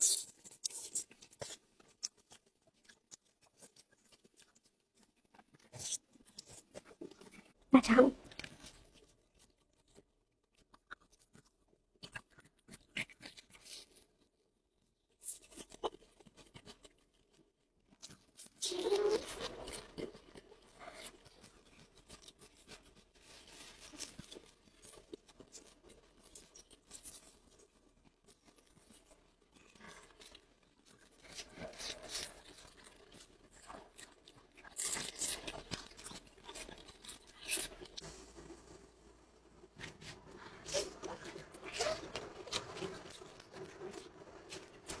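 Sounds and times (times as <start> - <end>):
chewing and biting food: 0.0 - 7.5, 8.2 - 14.2, 15.1 - 38.5.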